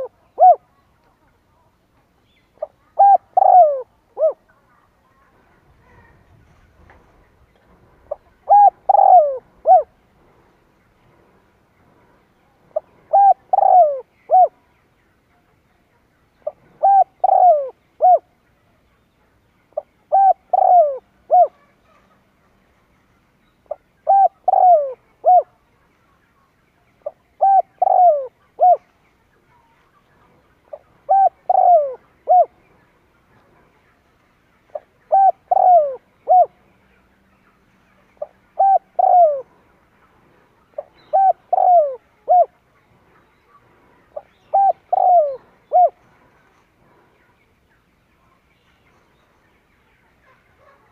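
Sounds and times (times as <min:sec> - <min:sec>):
dove cooing: 0:00.0 - 0:00.7, 0:02.6 - 0:04.5, 0:08.0 - 0:10.0, 0:12.7 - 0:14.6, 0:16.4 - 0:18.3, 0:19.8 - 0:22.0, 0:23.7 - 0:25.6, 0:27.0 - 0:28.9, 0:30.7 - 0:32.6, 0:34.7 - 0:36.6, 0:38.2 - 0:39.6, 0:40.7 - 0:42.6, 0:44.1 - 0:46.0.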